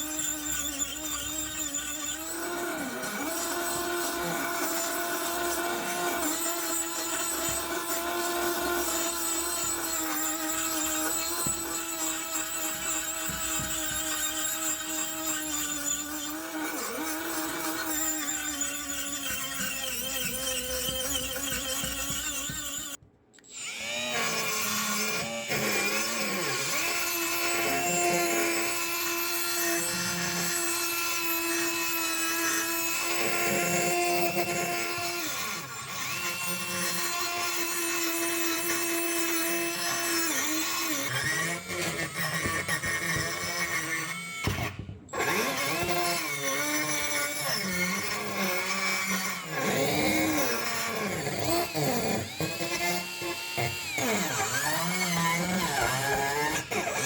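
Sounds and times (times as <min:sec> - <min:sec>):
power tool running: 0:00.0 - 0:57.0.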